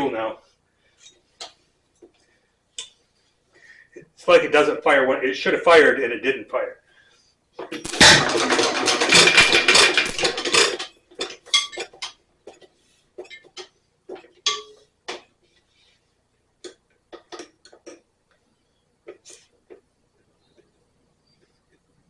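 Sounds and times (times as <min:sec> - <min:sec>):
loud metallic clatter: 0:07.8 - 0:10.8
metal clinks and taps: 0:09.1 - 0:15.3.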